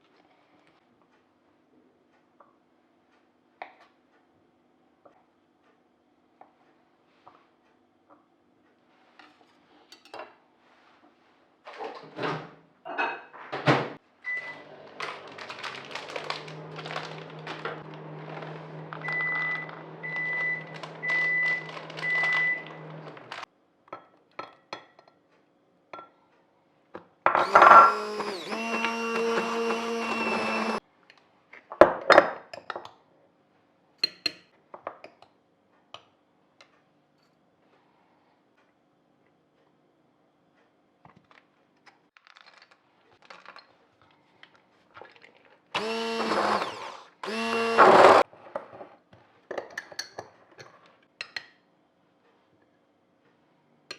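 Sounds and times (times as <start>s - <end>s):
low appliance hum: 0.1s - 23.7s
kitchen appliance motor running: 14.4s - 23.4s, 27.4s - 30.8s, 45.8s - 48.2s.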